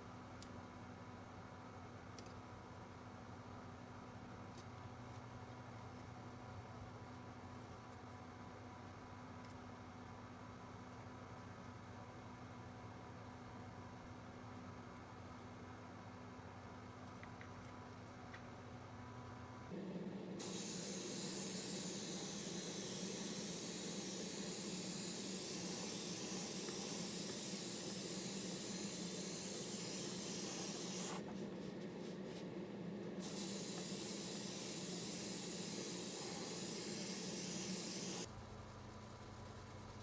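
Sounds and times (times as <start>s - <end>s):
paint sprayer hissing: 20.4s - 32.4s, 33.2s - 38.3s.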